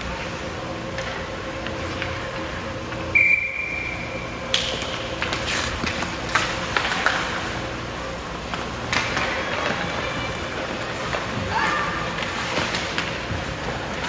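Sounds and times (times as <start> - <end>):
referee's whistle: 3.1 - 4.2.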